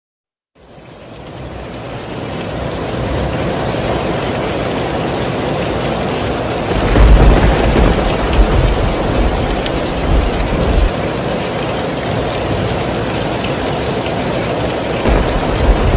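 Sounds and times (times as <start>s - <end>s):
heavy rain falling: 0.6s - 15.9s
deep rumble of thunder: 6.7s - 11.0s, 15.0s - 15.9s.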